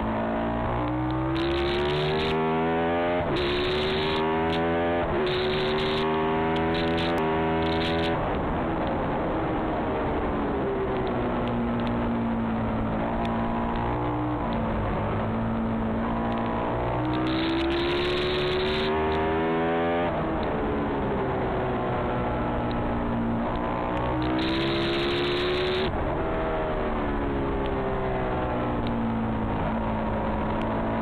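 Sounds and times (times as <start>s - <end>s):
motorcycle engine revving: 0.0s - 8.2s, 11.7s - 20.2s, 22.3s - 25.9s.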